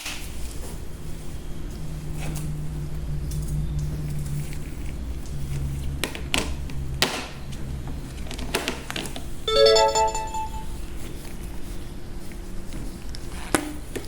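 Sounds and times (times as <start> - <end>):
rising run of bright notes: 9.5 - 10.7.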